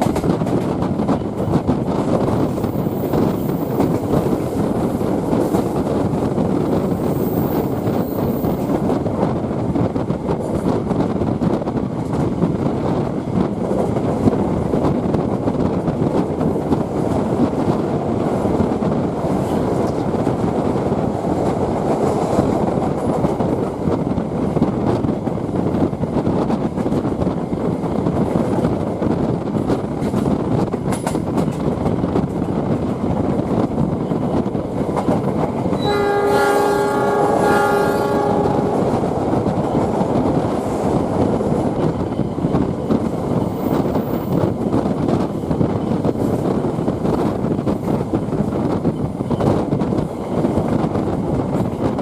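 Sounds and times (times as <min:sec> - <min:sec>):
train rumble with wheel clatter: 0:00.0 - 0:52.0
locomotive horn: 0:35.8 - 0:38.9.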